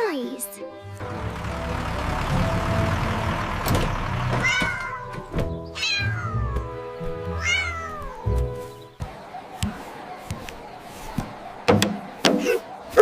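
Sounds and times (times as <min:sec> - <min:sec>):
background music: 0:00.0 - 0:09.0
cat meowing: 0:04.4 - 0:05.0, 0:05.8 - 0:06.7, 0:07.3 - 0:08.2.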